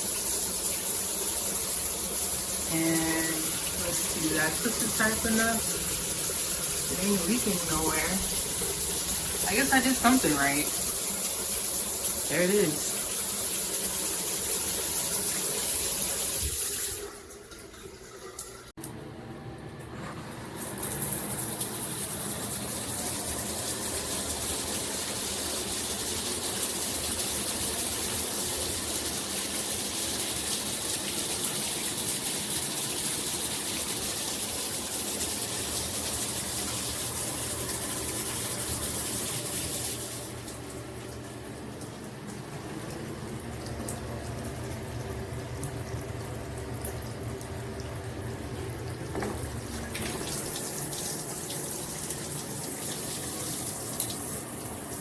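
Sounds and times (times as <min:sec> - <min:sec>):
shower head spraying water: 0:00.0 - 0:17.1, 0:20.6 - 0:32.8.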